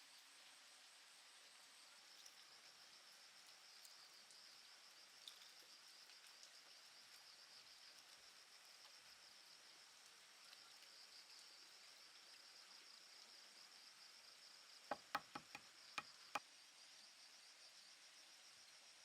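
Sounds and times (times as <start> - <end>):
insects chirring: 10.4 - 17.0
sharp knocks: 14.9 - 15.6.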